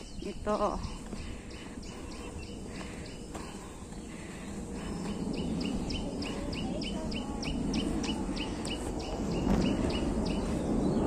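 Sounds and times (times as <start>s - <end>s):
steady low rumble: 0.0s - 11.0s
bird chirping rapidly: 5.0s - 11.0s.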